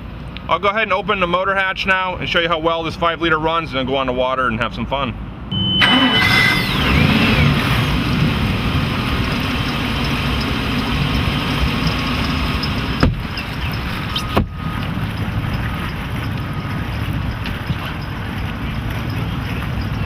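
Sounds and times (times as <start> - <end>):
boat engine idling: 5.6 - 20.0.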